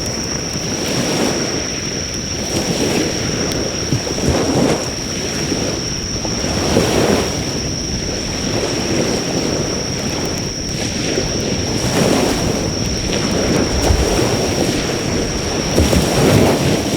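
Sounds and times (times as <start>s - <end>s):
insects trilling: 0.0s - 16.9s
sea waves surging onto shore: 0.0s - 16.9s
fire crackling: 9.0s - 16.9s.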